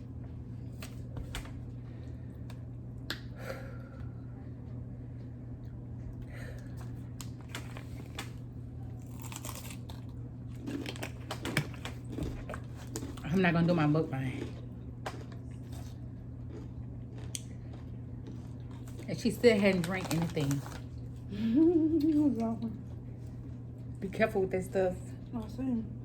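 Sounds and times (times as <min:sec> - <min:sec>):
low electrical hum: 0:00.0 - 0:26.0
crunching and chewing chips: 0:06.2 - 0:21.4.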